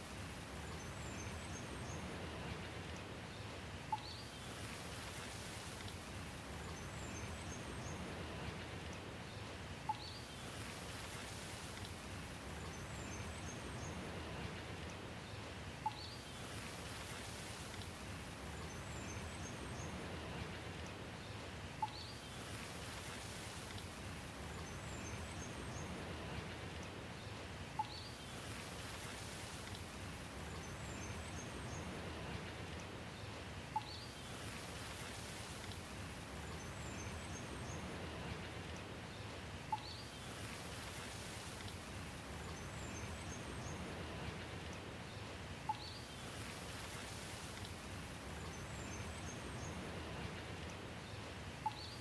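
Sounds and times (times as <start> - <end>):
rain hiss: 0.0 - 52.0.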